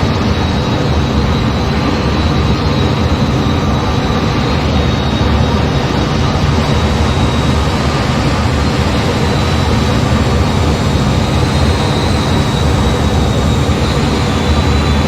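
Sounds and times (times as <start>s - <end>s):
faint high whine: 0.0s - 15.0s
jet engine roar: 0.0s - 15.0s.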